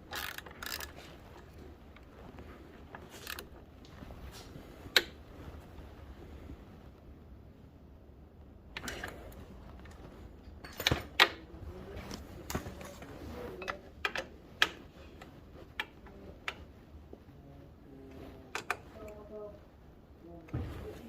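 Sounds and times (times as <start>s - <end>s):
hand tools and metal parts clinking: 0.0s - 1.6s, 10.4s - 11.4s.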